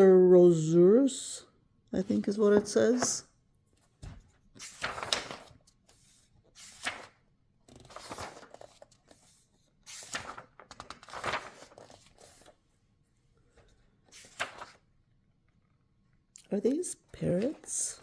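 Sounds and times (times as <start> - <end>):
book pages turning: 2.6 - 3.2, 3.8 - 12.6, 13.6 - 14.9, 17.2 - 18.0.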